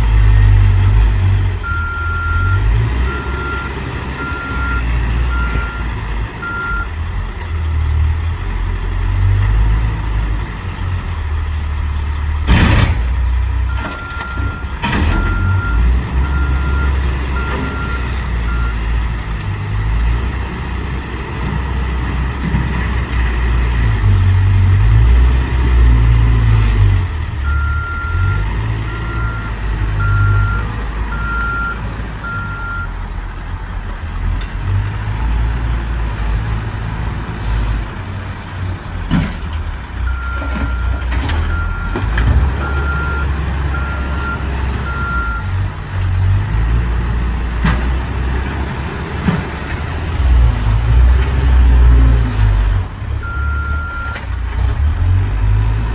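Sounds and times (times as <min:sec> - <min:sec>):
diesel engine working under load: 0:00.0 - 0:55.9
reversing alarm beeping: 0:01.6 - 0:06.9, 0:13.7 - 0:18.8, 0:27.4 - 0:33.0, 0:42.6 - 0:45.7, 0:53.2 - 0:54.2.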